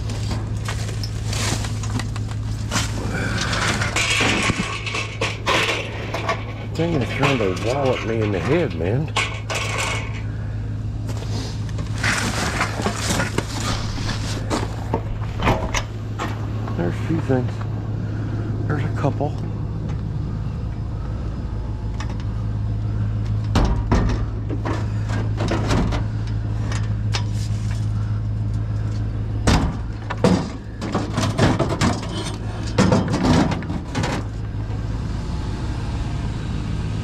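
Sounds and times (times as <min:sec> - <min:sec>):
loose objects rattling: 0:00.0 - 0:10.3, 0:11.7 - 0:17.7
vehicle engine humming: 0:00.0 - 0:37.0.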